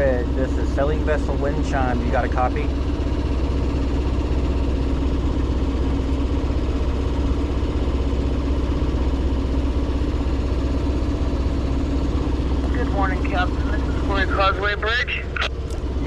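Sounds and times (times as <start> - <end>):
boat diesel engine droning: 0.0 - 16.0.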